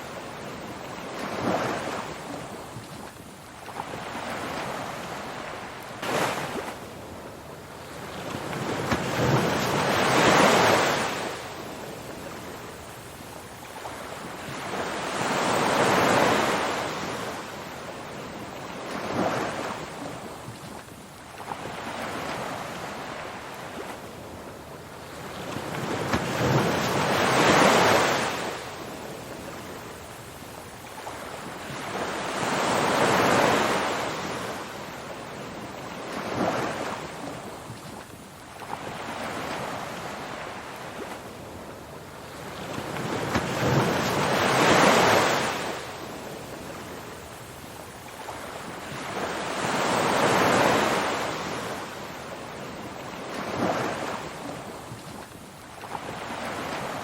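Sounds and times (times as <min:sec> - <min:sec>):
ocean waves rushing in: 0:00.0 - 0:57.0.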